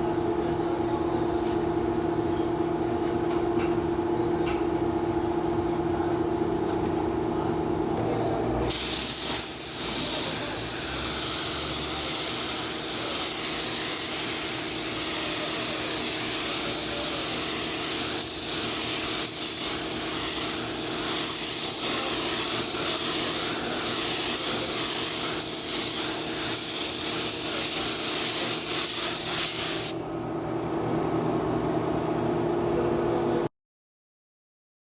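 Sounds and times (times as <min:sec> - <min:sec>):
paint spray gun hissing: 0:08.7 - 0:30.0.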